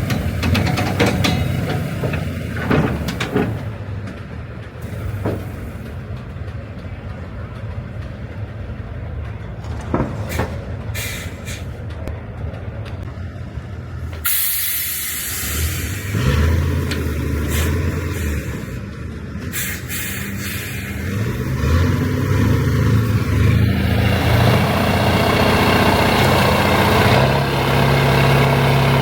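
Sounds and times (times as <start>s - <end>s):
knocks and clanks: 0.0s - 8.4s, 9.2s - 11.0s
truck engine idling: 0.0s - 29.0s
compressed air hiss: 10.4s - 11.8s, 14.2s - 16.2s, 19.5s - 21.1s.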